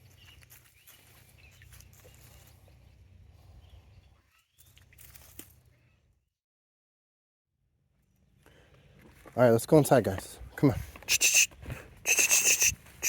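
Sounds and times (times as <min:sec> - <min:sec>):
faint animal calls: 0:11.1 - 0:11.5, 0:12.1 - 0:12.8.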